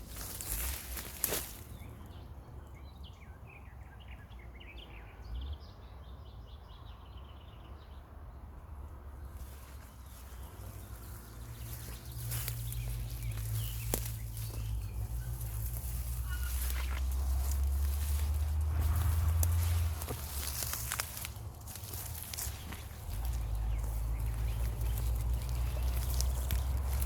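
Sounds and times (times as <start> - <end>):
songbird chirping and trilling: 0.0 - 8.2, 9.2 - 27.0
low rumble: 10.8 - 27.0.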